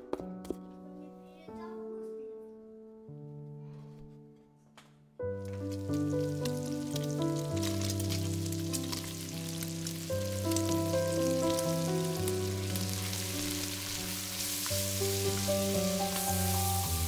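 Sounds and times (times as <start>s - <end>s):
soft background music: 0.0s - 17.0s
onions sizzling in fat: 5.5s - 17.0s.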